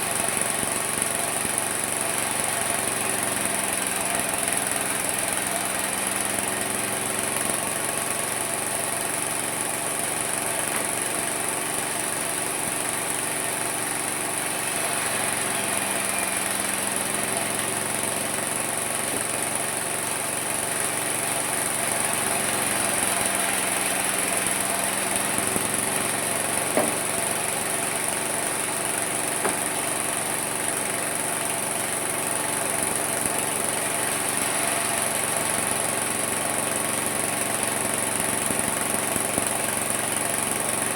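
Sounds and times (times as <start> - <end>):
sawmill machine drone: 0.0 - 40.9.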